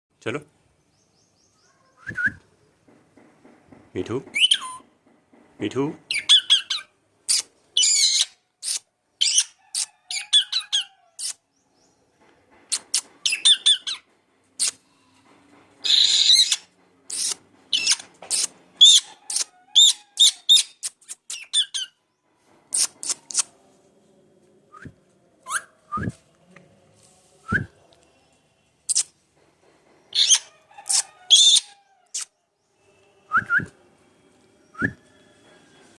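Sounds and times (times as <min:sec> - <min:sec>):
parrot making kissing smacks: 0:07.3 - 0:07.5, 0:08.6 - 0:08.9, 0:11.2 - 0:11.4, 0:12.7 - 0:13.1, 0:14.6 - 0:14.8, 0:17.1 - 0:18.5, 0:20.8 - 0:21.4, 0:22.7 - 0:23.5, 0:28.9 - 0:29.1, 0:30.9 - 0:31.1, 0:32.1 - 0:32.3.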